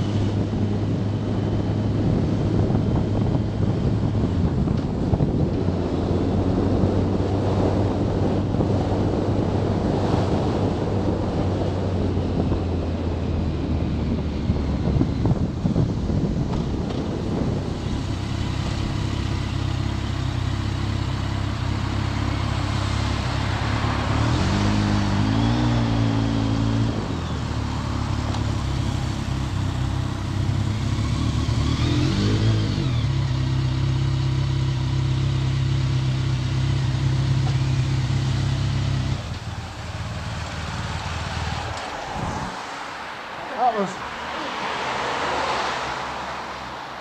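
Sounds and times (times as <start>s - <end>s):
motorcycle engine running: 14.5s - 24.1s, 26.8s - 41.7s.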